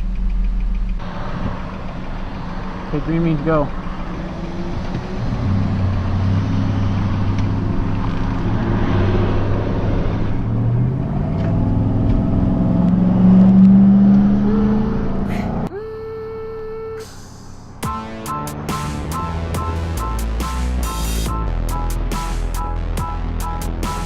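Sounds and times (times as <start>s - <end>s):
road and wind noise: 0.0s - 15.7s
vehicle engine accelerating: 0.0s - 15.7s, 17.6s - 24.0s.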